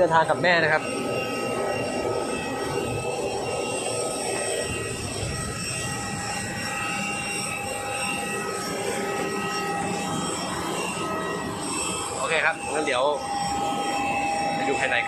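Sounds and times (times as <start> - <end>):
jet engine whine: 0.0 - 15.0.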